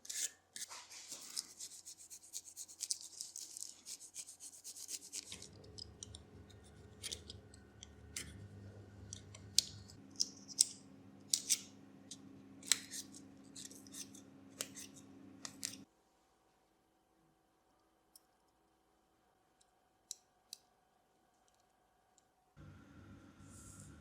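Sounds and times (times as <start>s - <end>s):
low steady hum: 5.3s - 20.0s, 21.1s - 24.0s.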